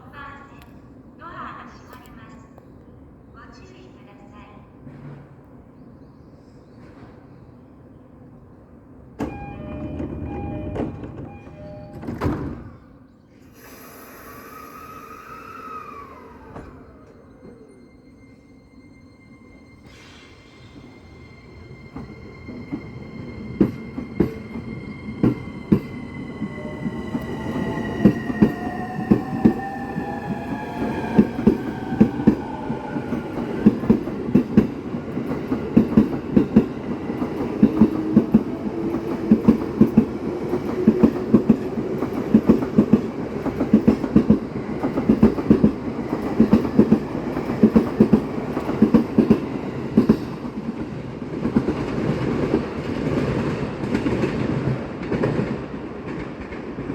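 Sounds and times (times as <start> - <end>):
electric train motor whine: 9.2 - 12.0, 13.7 - 33.5.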